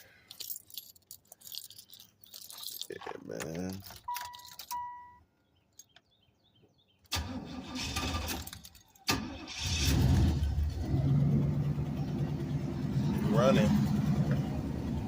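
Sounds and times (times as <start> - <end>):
short warning chimes: 4.0 - 5.2
car engine cranking and idling: 7.1 - 15.0.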